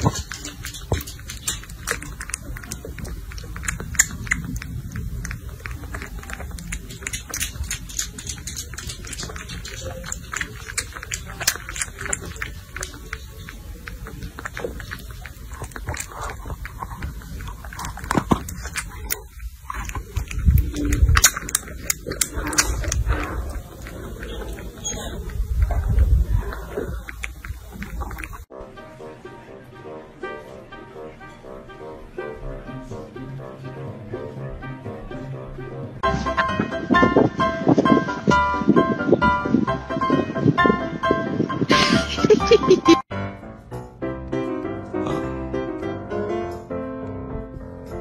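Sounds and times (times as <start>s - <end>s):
kitten sucking clicks: 0.0s - 28.4s.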